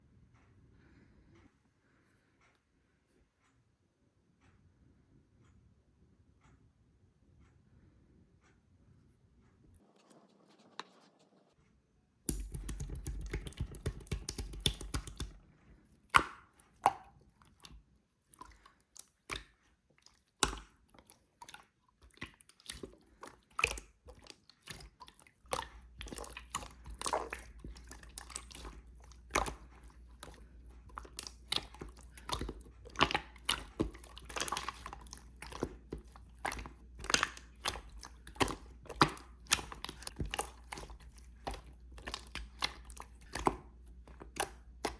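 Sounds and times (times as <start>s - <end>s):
slime squished by hand: 12.3s - 15.4s, 18.3s - 44.9s.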